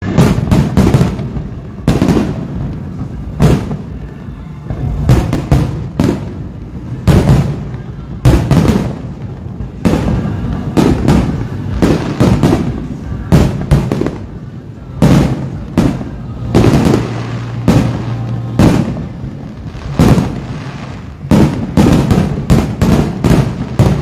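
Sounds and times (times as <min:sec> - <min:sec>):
fireworks bursting with echo: 0:00.0 - 0:24.0.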